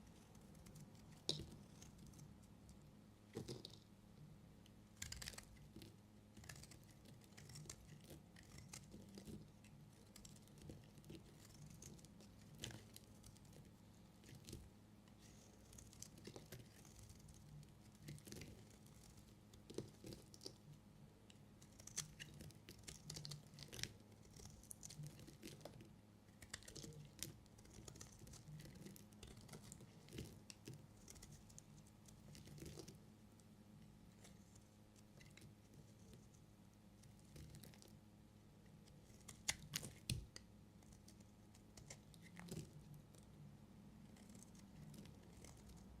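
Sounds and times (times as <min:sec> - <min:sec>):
faint low hum: 0:00.0 - 0:46.0
knife cutting soap: 0:05.0 - 0:20.6.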